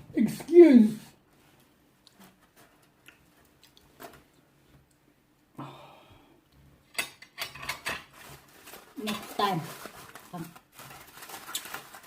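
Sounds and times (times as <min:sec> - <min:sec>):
tableware clicks and taps: 0:06.9 - 0:08.1.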